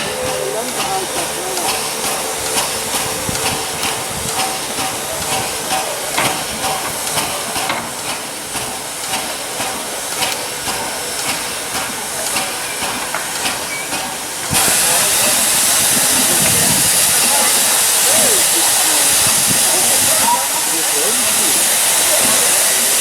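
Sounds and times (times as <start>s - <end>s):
steam hissing from locomotive: 0.0s - 23.0s.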